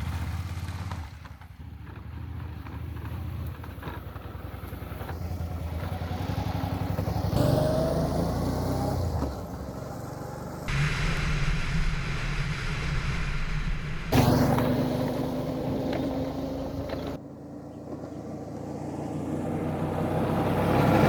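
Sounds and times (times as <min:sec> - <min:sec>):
road and wind noise: 0:00.0 - 0:21.0
motorcycle engine running: 0:14.1 - 0:21.0.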